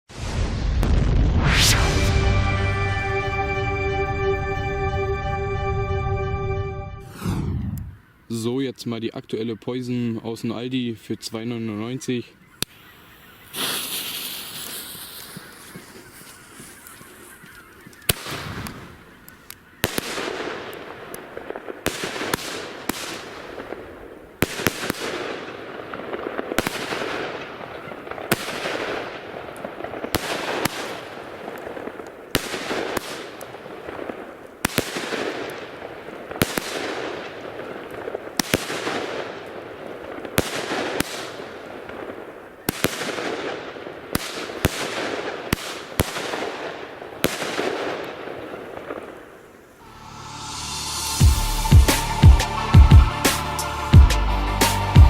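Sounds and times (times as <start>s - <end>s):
fizzing firework tail: 0.1s - 3.3s, 12.7s - 17.3s
firework battery shots cracking: 12.6s - 17.3s, 18.0s - 19.0s, 19.8s - 49.2s.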